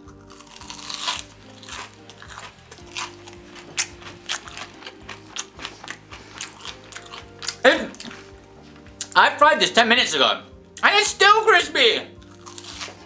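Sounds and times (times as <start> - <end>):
crunchy chewing: 0.0 - 9.2, 12.2 - 13.0
soft background music: 0.0 - 13.0.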